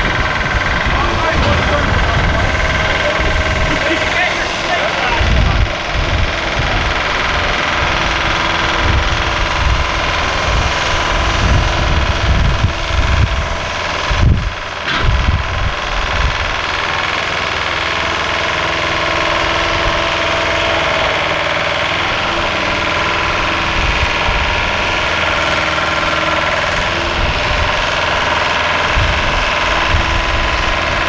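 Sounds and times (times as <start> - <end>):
large engine running: 0.0 - 31.0
low thumps: 0.8 - 3.9.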